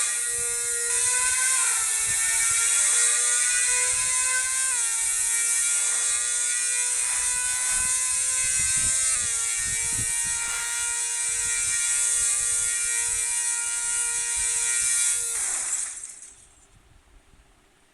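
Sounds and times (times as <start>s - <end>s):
steady mechanical whine: 0.0s - 16.8s
loud hiss: 7.0s - 16.5s.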